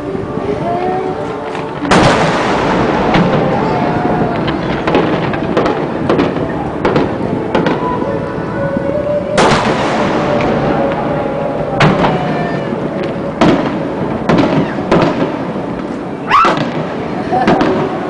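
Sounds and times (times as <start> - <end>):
fireworks crackling: 0.0 - 18.0
fireworks booming: 1.5 - 8.2, 9.4 - 18.0.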